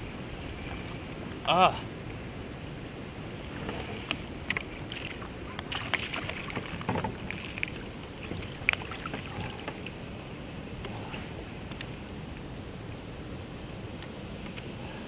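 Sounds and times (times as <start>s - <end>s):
water splashing around kayak: 3.2s - 11.9s.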